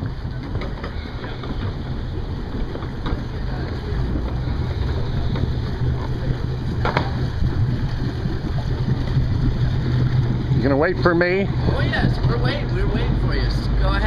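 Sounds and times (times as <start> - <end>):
motorboat engine humming: 0.0 - 14.0
wind buffeting microphone: 0.0 - 14.0.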